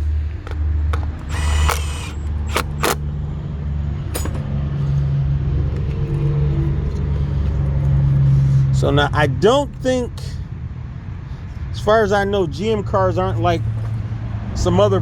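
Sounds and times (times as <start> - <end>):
sharp clicks: 0.3 - 3.0.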